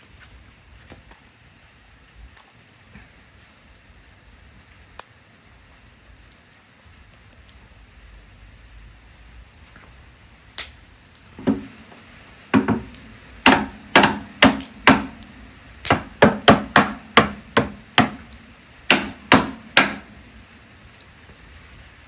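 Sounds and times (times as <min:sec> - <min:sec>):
axe chopping firewood: 0:11.4 - 0:11.8, 0:12.5 - 0:20.2.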